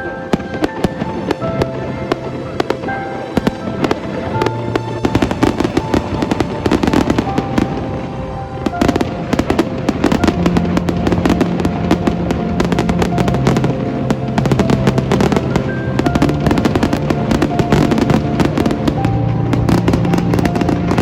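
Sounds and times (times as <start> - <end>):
fireworks bangs and crackles: 0.0 - 21.0
music playing: 0.0 - 21.0.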